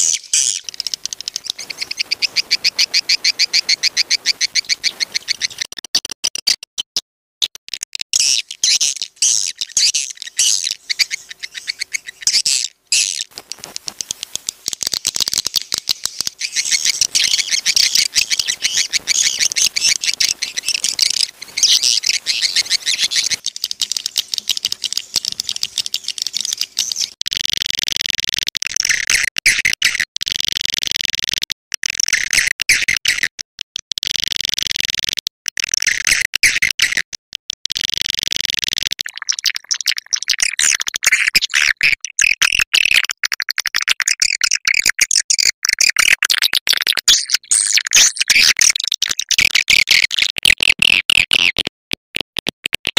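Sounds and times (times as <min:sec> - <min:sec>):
swiftlets twittering: 0:00.0 - 0:05.7, 0:08.2 - 0:27.2
dry clicks: 0:00.6 - 0:02.1, 0:12.0 - 0:39.1.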